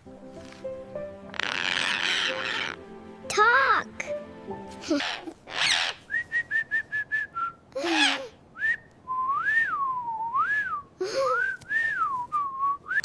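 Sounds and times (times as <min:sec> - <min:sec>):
parrot squawk: 0:01.3 - 0:02.8, 0:04.8 - 0:06.1, 0:07.8 - 0:08.4
parrot whistling: 0:01.3 - 0:02.8, 0:05.0 - 0:06.7.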